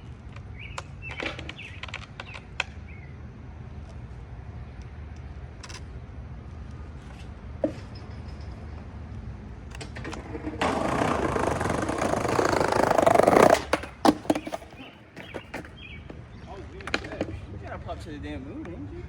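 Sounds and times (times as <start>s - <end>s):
skateboard wheels rolling on pavement: 0.0s - 19.0s
skateboard clacking: 9.7s - 17.4s.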